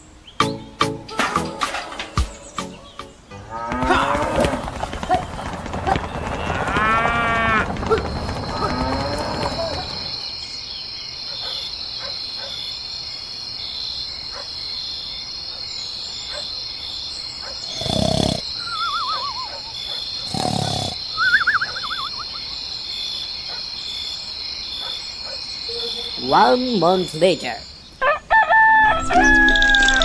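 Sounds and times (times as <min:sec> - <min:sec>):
insects chirring: 0:04.6 - 0:28.4
loud animal calls: 0:17.6 - 0:22.4.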